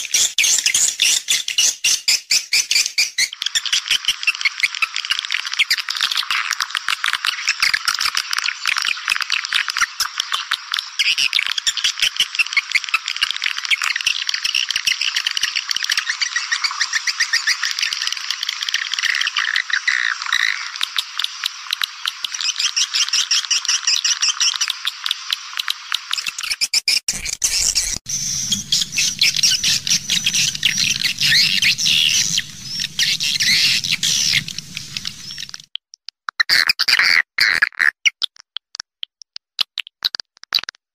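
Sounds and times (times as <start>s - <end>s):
swiftlets twittering: 27.1s - 35.6s
low hum: 27.9s - 35.6s.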